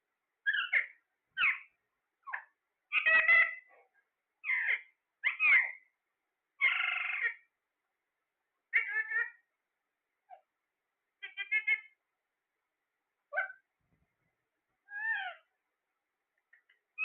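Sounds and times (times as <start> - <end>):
parrot calling: 0.4 - 3.7, 4.4 - 5.9, 6.6 - 7.5, 8.7 - 9.5, 11.2 - 12.0, 13.3 - 13.7, 14.9 - 15.5.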